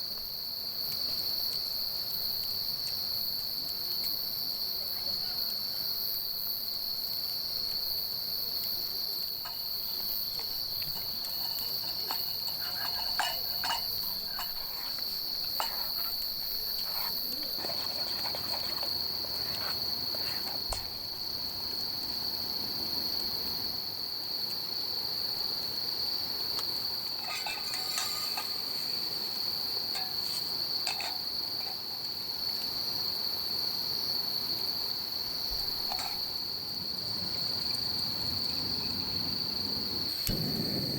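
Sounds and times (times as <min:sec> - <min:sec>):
crickets chirping: 0:00.0 - 0:40.9
short clinks and taps: 0:09.4 - 0:21.0.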